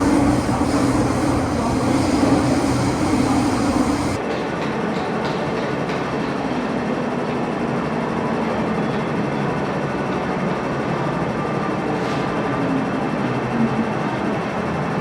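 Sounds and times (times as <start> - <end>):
metro train running: 0.0 - 4.2.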